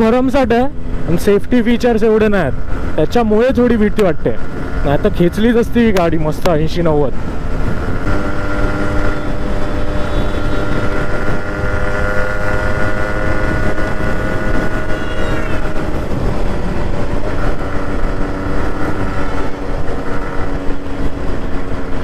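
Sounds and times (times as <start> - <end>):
wind and road rumble: 0.0 - 22.0
motorcycle engine running: 7.1 - 22.0.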